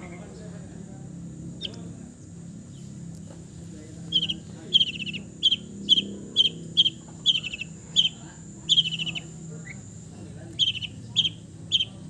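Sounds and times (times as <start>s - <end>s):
bird harsh chattering song: 1.5s - 1.9s, 4.0s - 12.0s.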